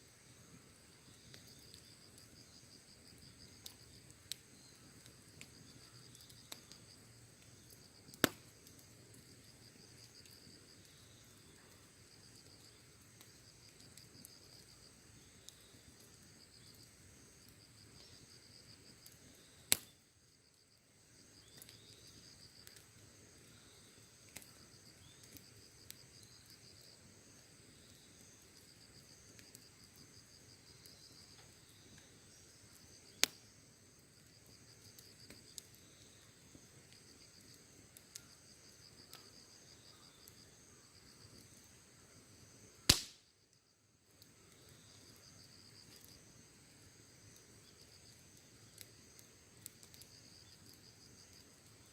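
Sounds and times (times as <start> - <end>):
campfire crackling: 0.0 - 51.9
insects chirring: 0.0 - 51.9
loud sharp fire pops: 7.5 - 8.8, 19.7 - 20.0, 33.1 - 33.4, 42.8 - 43.4.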